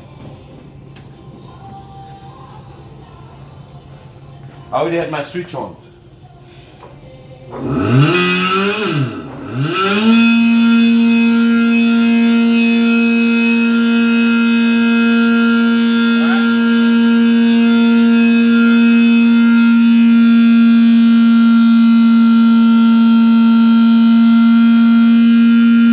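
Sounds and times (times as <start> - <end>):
electric pump humming with whine: 5.7 - 25.9.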